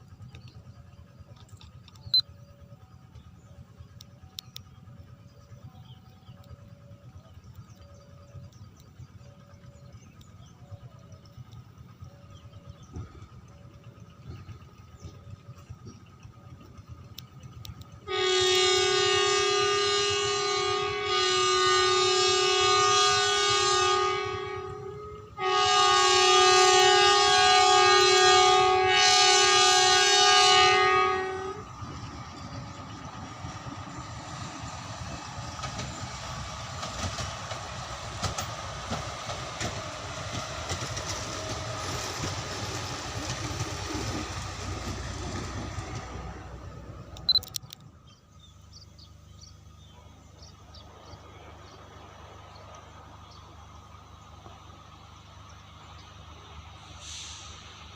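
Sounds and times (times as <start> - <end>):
train rumble and wheel clatter: 0.0 - 57.9
train horn blasts: 17.8 - 32.8.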